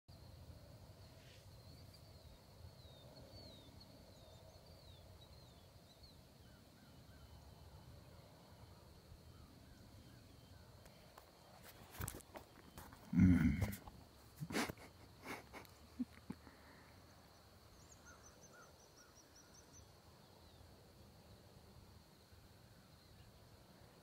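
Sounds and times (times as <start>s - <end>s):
bird chirping: 1.0s - 13.6s, 16.0s - 20.7s.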